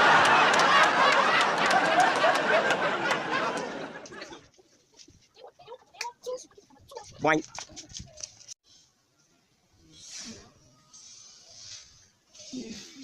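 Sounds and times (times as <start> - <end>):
crowd laughing: 0.0 - 4.6.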